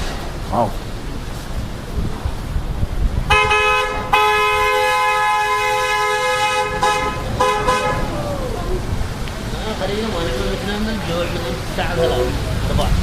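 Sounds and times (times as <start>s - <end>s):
car horn honking: 3.3s - 8.2s.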